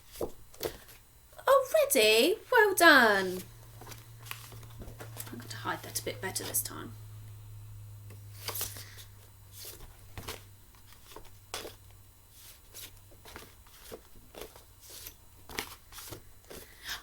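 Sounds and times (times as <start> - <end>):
paper cards rustling and tapping: 0.0 - 1.0, 3.3 - 6.6, 8.4 - 16.8.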